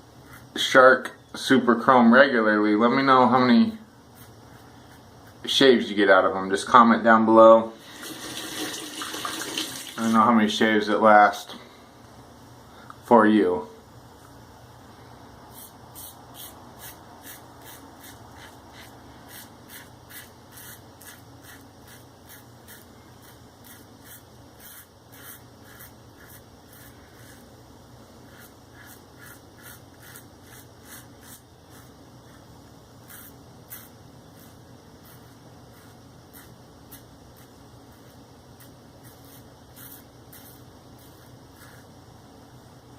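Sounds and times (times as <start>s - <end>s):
razor scraping stubble: 15.6s - 27.5s, 28.3s - 32.4s, 33.0s - 41.8s.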